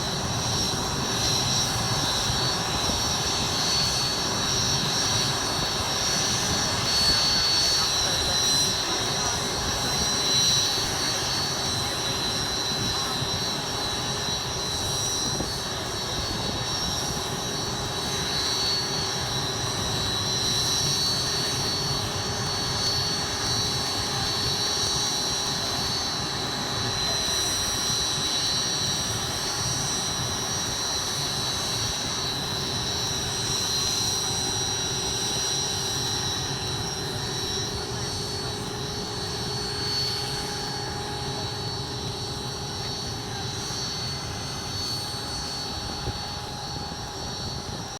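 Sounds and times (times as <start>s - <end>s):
aircraft engines whining: 0.0s - 47.9s.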